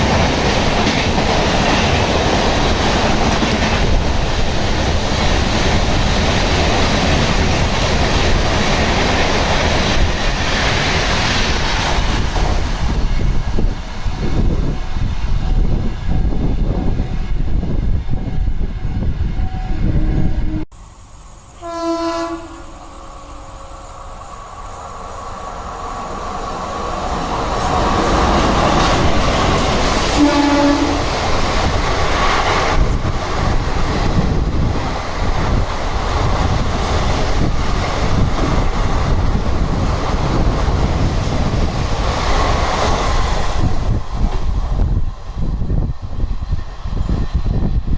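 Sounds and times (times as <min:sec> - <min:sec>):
train wheel clatter: 0:00.0 - 0:17.0, 0:23.4 - 0:47.9
train passing with rumble: 0:00.0 - 0:47.9
locomotive horn: 0:19.4 - 0:20.7, 0:21.6 - 0:23.5, 0:30.1 - 0:31.2.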